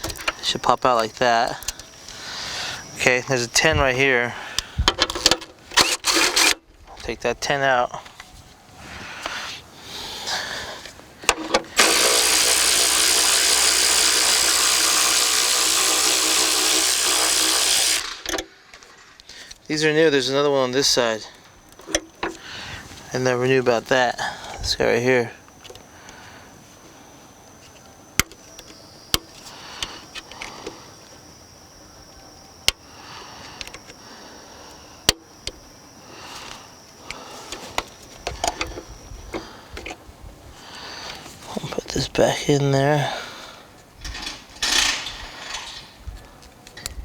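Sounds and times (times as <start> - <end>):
cordless power tool spinning: 0.0 - 3.6, 5.2 - 6.6, 11.4 - 19.1.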